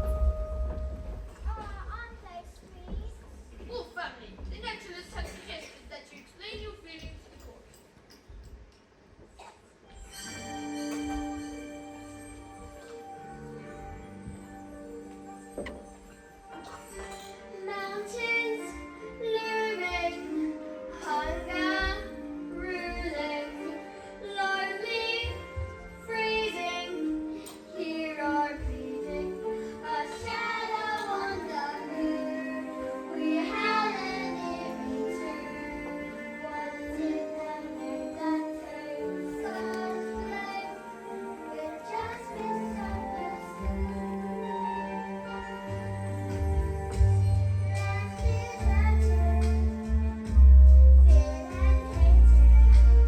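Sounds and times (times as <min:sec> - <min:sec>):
musical accompaniment: 0:00.0 - 0:01.7, 0:09.8 - 0:53.0
children singing together: 0:16.5 - 0:53.0.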